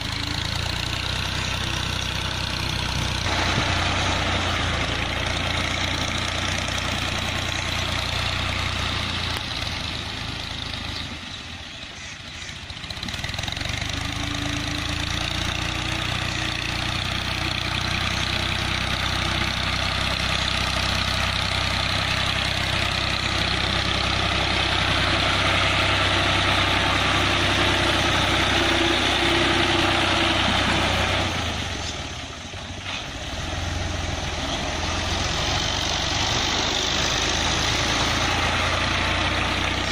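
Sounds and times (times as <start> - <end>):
farm machine engine running: 0.0 - 39.9.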